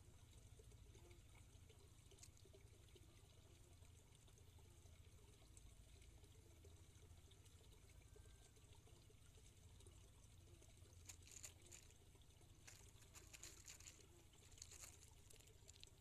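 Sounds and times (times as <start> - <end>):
water trickling: 0.0 - 16.0
soft crackling: 10.6 - 16.0.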